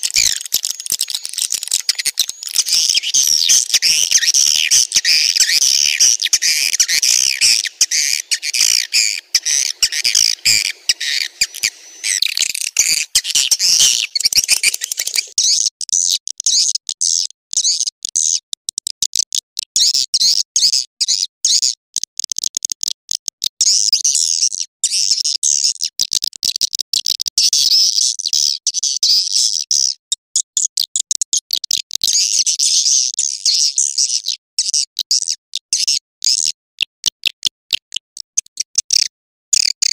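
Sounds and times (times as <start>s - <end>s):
swiftlets chirping rapidly: 0.0s - 15.4s.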